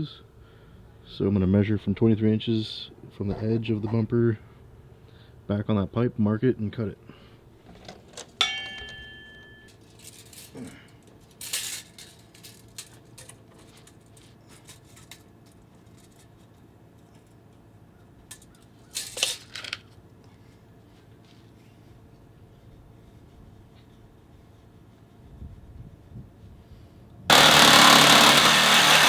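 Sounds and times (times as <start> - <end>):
metallic clink: 8.4 - 10.8, 11.4 - 13.3.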